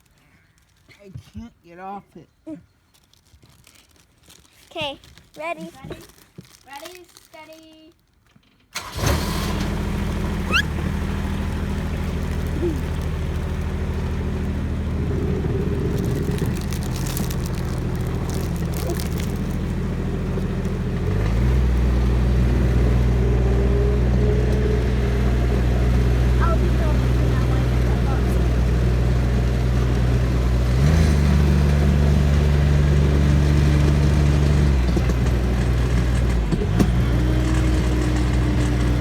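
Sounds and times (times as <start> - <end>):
tractor engine revving: 8.8 - 39.0.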